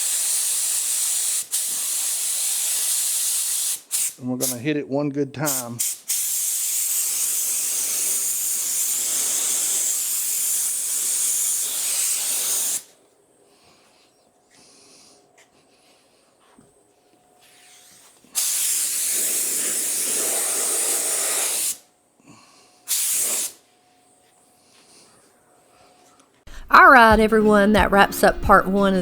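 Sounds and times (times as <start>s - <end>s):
paint spray gun hissing: 0.0s - 4.2s, 5.5s - 12.9s, 17.5s - 21.8s, 22.9s - 23.6s.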